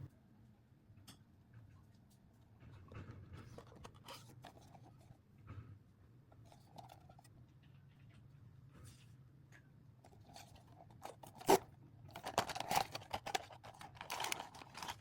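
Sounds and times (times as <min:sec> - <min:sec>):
packaging rustling and clicking: 0:10.1 - 0:15.0.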